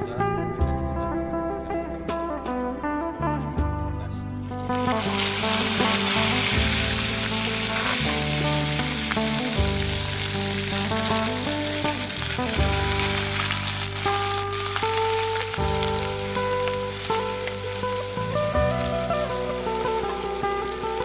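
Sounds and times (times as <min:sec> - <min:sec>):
music of held notes: 0:00.0 - 0:21.0
food sizzling in hot oil: 0:04.4 - 0:21.0.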